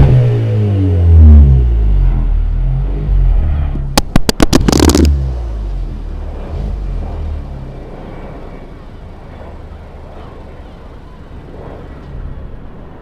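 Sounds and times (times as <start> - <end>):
car engine hitting rev limiter: 0.0 - 7.8
exhaust low rumble: 0.0 - 13.0
exhaust sharp cracks: 4.0 - 5.3.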